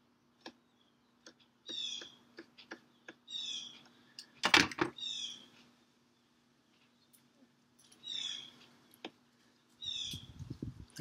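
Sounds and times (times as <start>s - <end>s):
songbird singing: 0.1s - 11.0s.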